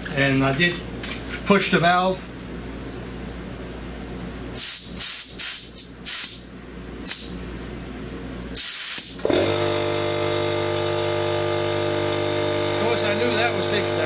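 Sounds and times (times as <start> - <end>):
air compressor humming: 4.5 - 7.5, 8.5 - 14.0
compressed air hissing: 4.6 - 7.4, 8.6 - 9.4.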